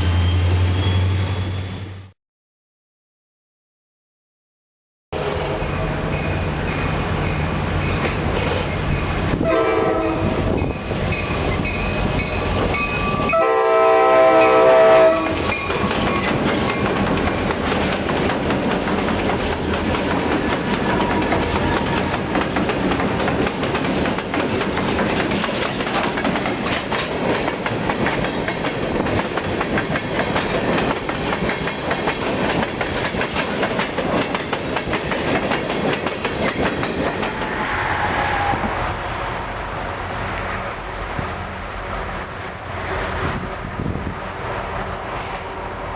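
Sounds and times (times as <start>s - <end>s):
train rolling past: 0.0s - 2.2s, 5.2s - 45.9s
locomotive air horn blasts: 9.3s - 10.6s, 13.3s - 15.4s.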